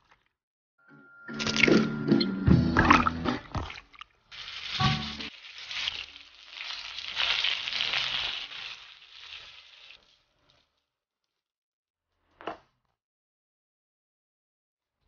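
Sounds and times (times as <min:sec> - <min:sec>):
chicken wings sizzling in oil: 0:04.3 - 0:10.6.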